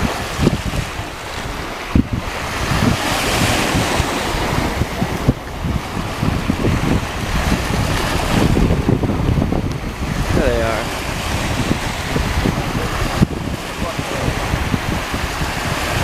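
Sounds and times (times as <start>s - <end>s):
surf washing onto shore: 0.0s - 16.0s
wind buffeting microphone: 0.0s - 16.0s.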